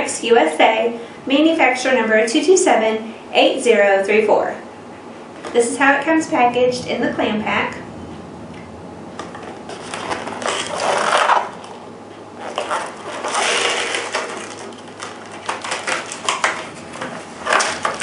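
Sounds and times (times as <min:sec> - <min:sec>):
plastic packaging crackling: 0:09.2 - 0:11.8, 0:12.4 - 0:18.0.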